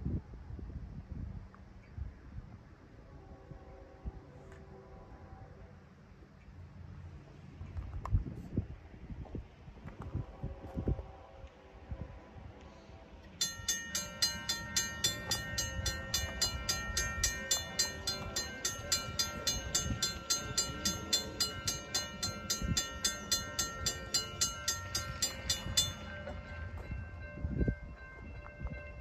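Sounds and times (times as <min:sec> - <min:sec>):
railroad crossing bell ringing: 0:13.3 - 0:29.0.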